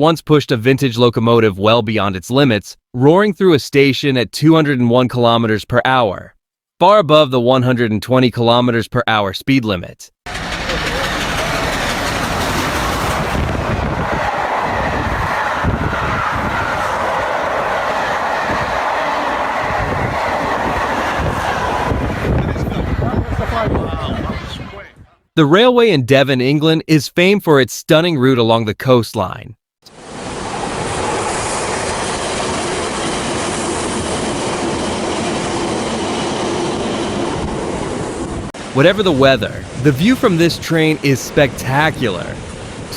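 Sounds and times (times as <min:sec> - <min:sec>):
train passing at speed: 0:10.3 - 0:24.8, 0:30.0 - 0:38.8.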